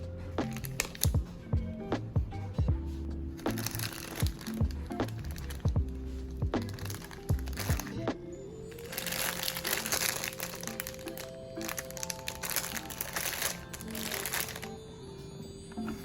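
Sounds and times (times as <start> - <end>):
background music: 0.0 - 16.0
grocery packaging rustling: 0.4 - 1.2, 3.4 - 8.1, 8.7 - 14.9.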